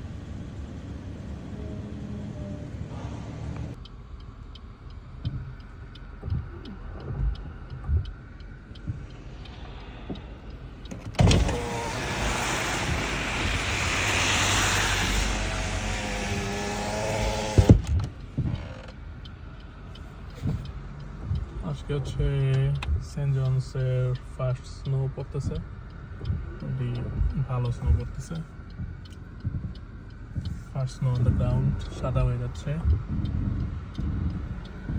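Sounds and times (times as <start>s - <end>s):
light regular ticking: 3.6s - 34.9s
power window motor whining: 10.9s - 19.0s.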